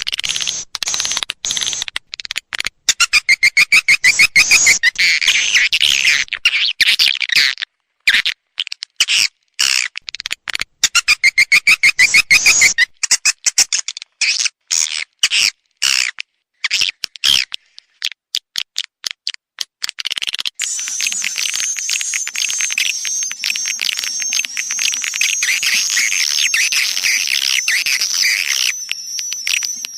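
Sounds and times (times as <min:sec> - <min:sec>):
swiftlet calls: 0:00.0 - 0:01.9, 0:20.6 - 0:29.9
wavering high trill: 0:20.6 - 0:29.9.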